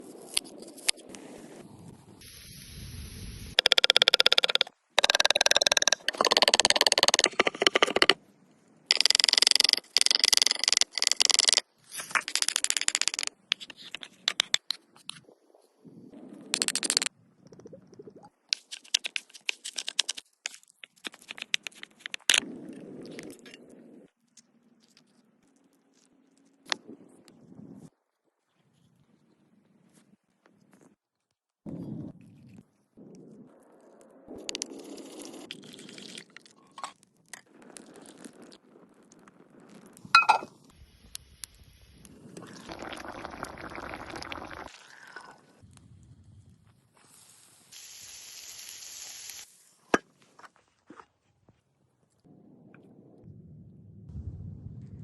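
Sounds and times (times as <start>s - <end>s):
crisp clicks and scrapes: 18.5s - 23.6s
pouring noise: 42.2s - 45.6s.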